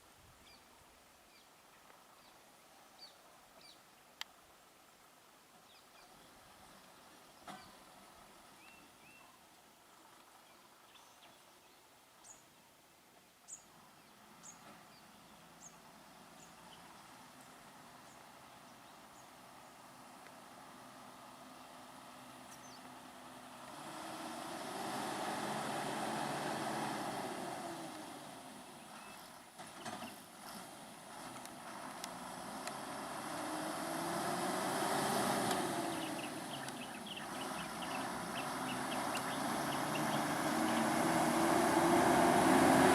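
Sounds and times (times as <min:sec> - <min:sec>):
vehicles passing on road: 0:13.9 - 0:42.9.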